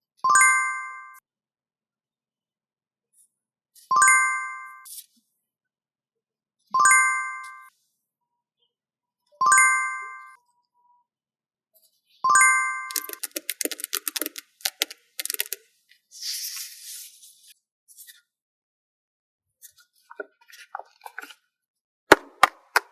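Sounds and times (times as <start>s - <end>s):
paper sticker sheets crackling: 12.9s - 15.6s.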